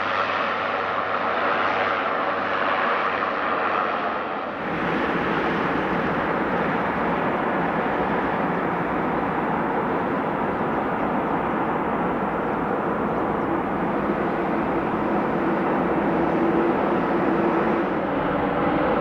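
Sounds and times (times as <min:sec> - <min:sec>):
aircraft engines rushing: 0:04.5 - 0:19.0
faint steady hum: 0:04.5 - 0:19.0.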